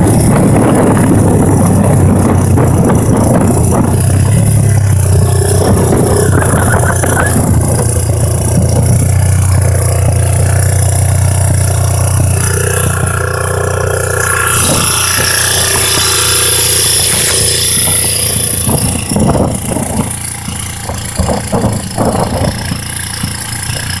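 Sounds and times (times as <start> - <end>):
engine idling: 0.0 - 24.0
knocks and clatters: 0.0 - 24.0.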